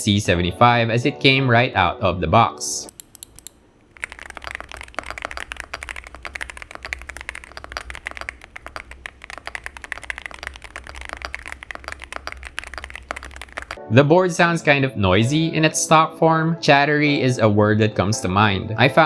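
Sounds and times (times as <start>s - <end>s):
keyboard typing: 2.9s - 13.8s.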